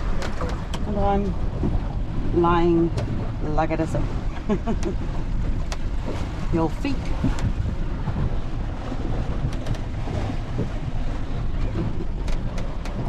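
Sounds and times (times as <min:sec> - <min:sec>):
water rushing along hull: 0:00.0 - 0:13.0.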